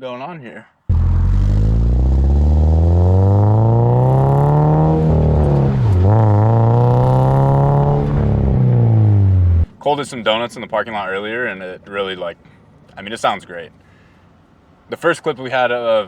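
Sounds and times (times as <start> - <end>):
car engine revving: 0.9 - 9.7.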